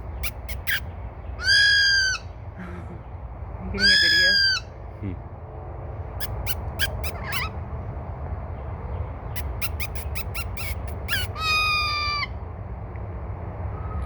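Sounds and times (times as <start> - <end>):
parrot calling: 0.0 - 2.4, 3.7 - 4.8, 6.2 - 7.6, 9.3 - 12.4.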